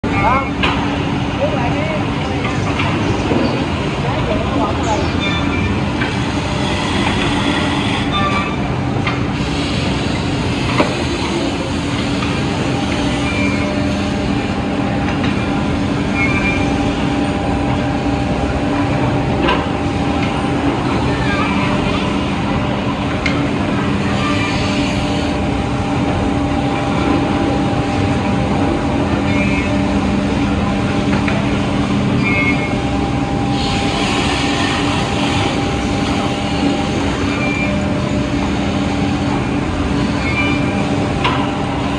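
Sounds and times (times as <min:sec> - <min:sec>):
drilling and milling machine running: 0:05.6 - 0:08.2, 0:09.3 - 0:21.2, 0:23.7 - 0:28.1, 0:29.1 - 0:41.9.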